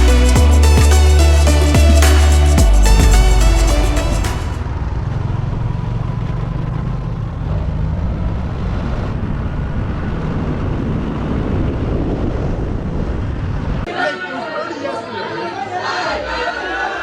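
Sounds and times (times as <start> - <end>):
road and wind noise: 4.6 - 13.9.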